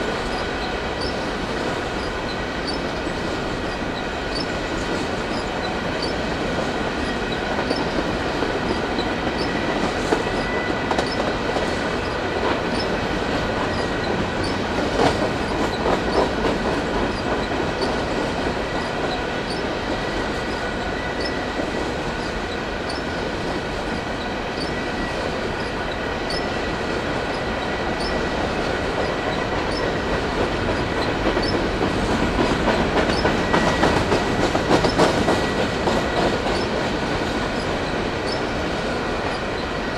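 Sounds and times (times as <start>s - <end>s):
clickety-clack over rail joints: 0.0s - 39.9s
freight train wheel and rail noise: 0.0s - 39.9s
thin wheel squeal: 1.0s - 1.2s, 2.0s - 4.5s, 5.3s - 6.2s, 8.7s - 11.2s, 13.7s - 14.6s, 18.7s - 23.2s, 24.0s - 26.6s, 27.3s - 28.3s, 29.0s - 30.0s, 30.8s - 31.6s, 33.1s - 34.0s.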